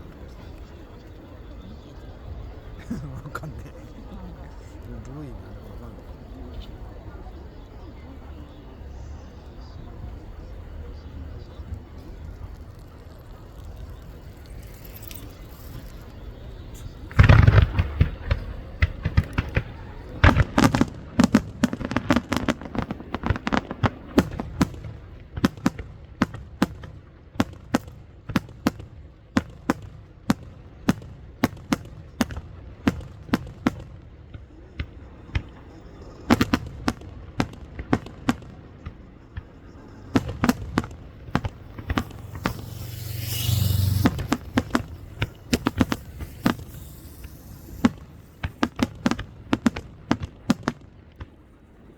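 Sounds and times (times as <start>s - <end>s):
fireworks bangs and crackles: 0.0s - 51.9s
fireworks barrage rumble: 0.0s - 51.9s
hiss: 41.8s - 49.2s.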